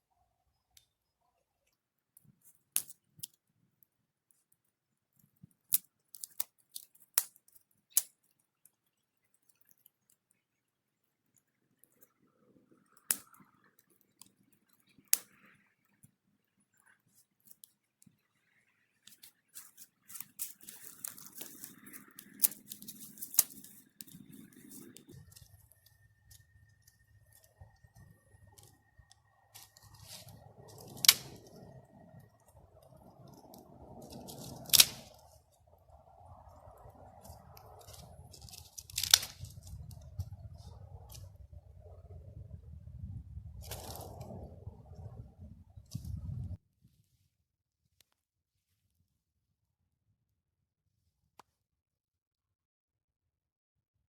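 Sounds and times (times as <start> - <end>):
crackly rustling and tearing: 5.2 - 10.2, 19.0 - 35.6, 36.3 - 41.4, 43.6 - 44.4
low steady rumble: 21.5 - 46.6.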